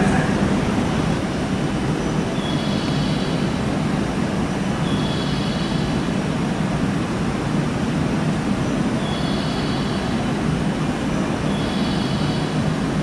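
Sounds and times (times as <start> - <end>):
train rumbling: 0.0 - 4.6.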